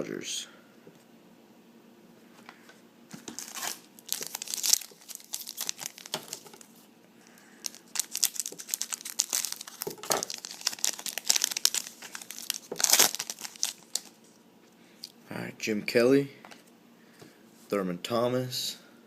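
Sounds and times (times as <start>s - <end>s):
wrapper tearing and crinkling: 3.2s - 6.7s, 7.6s - 14.2s.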